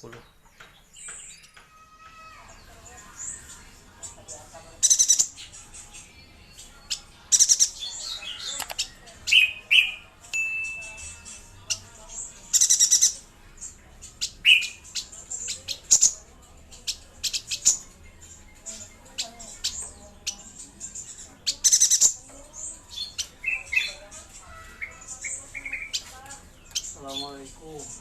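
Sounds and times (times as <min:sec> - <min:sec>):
bird chattering trills: 0:04.8 - 0:06.2, 0:06.9 - 0:28.0
sharp bird chirps: 0:04.8 - 0:11.9, 0:12.5 - 0:13.2, 0:14.1 - 0:16.2, 0:19.5 - 0:22.2.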